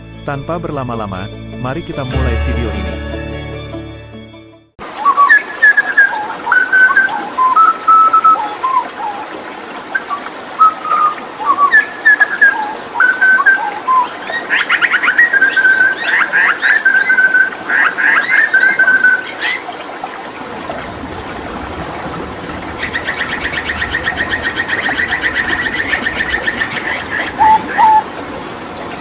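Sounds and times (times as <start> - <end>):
bird singing whistled notes: 5.0 - 8.8, 10.6 - 14.2.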